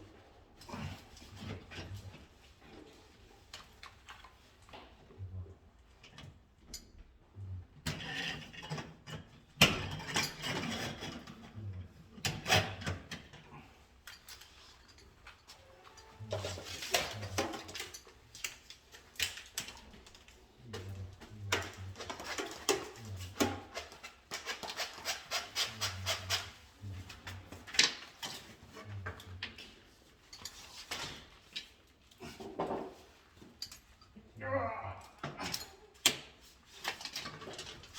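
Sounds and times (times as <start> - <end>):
small tools clicking and rubbing: 14.0 - 34.2.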